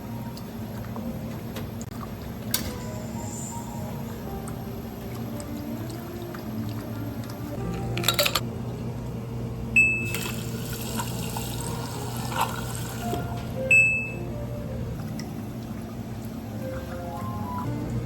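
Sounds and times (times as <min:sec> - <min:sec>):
background music: 0:02.6 - 0:08.5, 0:16.6 - 0:18.0
liquid being poured: 0:10.1 - 0:13.3.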